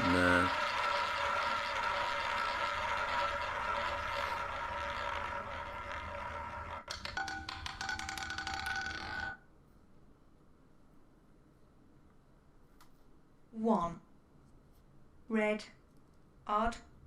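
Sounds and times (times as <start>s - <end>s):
roulette ball clattering: 0.0s - 9.4s
roulette ball whirring: 0.0s - 9.4s.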